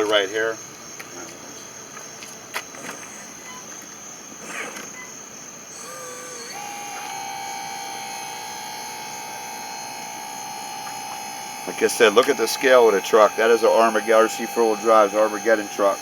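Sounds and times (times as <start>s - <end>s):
electric motor whining: 5.7s - 16.0s.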